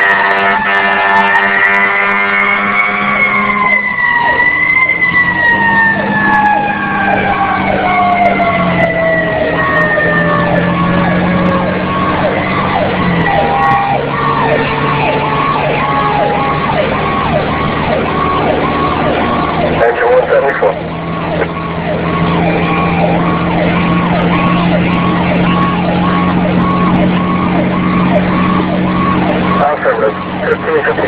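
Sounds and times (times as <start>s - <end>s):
siren falling wail: 0.0s - 31.0s
siren yelping rapidly: 0.0s - 31.0s
truck engine running: 0.0s - 31.0s.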